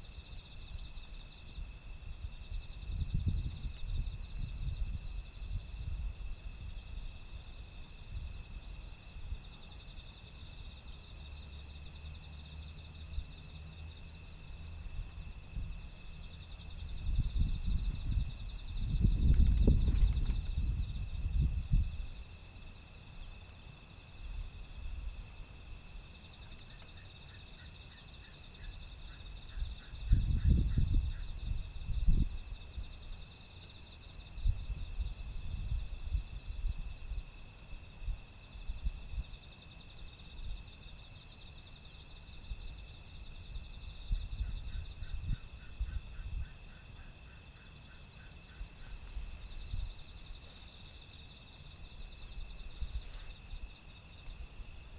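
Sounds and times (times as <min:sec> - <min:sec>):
wind rumbling on microphone: 0:00.0 - 0:09.5, 0:14.5 - 0:22.6, 0:29.0 - 0:33.2, 0:34.2 - 0:39.4, 0:42.4 - 0:47.1, 0:48.3 - 0:50.8, 0:51.4 - 0:54.9
crickets chirring: 0:00.0 - 0:54.9
insect trilling: 0:15.7 - 0:22.5, 0:42.8 - 0:54.9.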